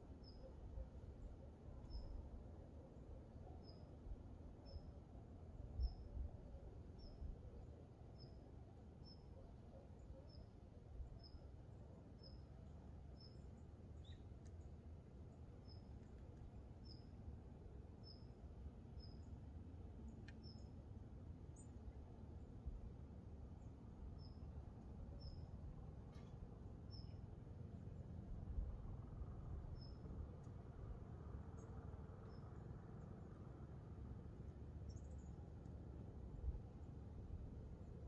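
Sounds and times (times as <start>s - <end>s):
faint low rumble: 0.0s - 38.0s
small bird chirping: 0.2s - 0.9s, 13.2s - 14.7s, 20.1s - 20.7s, 25.1s - 27.3s, 29.0s - 30.6s, 31.5s - 33.2s, 34.8s - 35.6s.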